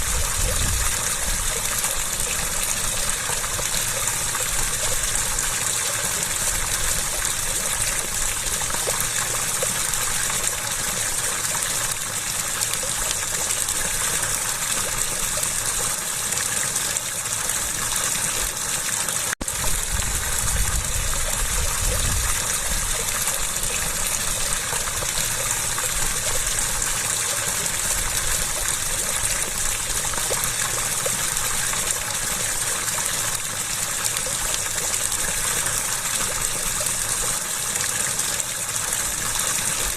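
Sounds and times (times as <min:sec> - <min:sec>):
water rushing and splashing: 0:00.0 - 0:39.9.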